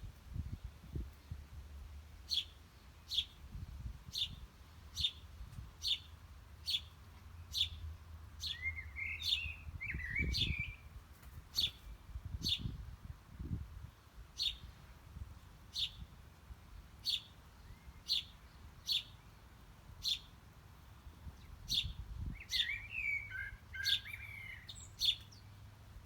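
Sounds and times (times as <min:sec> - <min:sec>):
high downslurred bird chirp: 0:08.4 - 0:10.9, 0:21.4 - 0:25.6.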